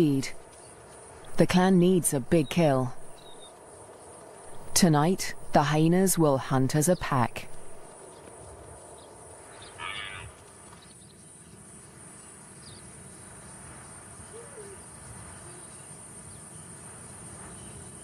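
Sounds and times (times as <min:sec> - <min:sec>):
night insects chorus: 0:00.0 - 0:18.0
loud insect call: 0:07.9 - 0:18.0.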